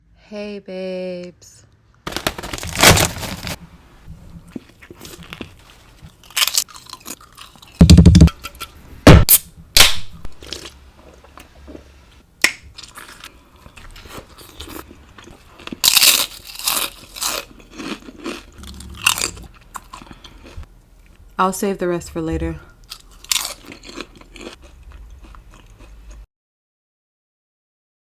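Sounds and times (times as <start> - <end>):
quiet chewing: 4.0 - 7.8, 16.6 - 21.4, 22.8 - 26.2
crunching bites of sandwich: 4.5 - 8.0, 12.7 - 20.6, 22.9 - 26.2.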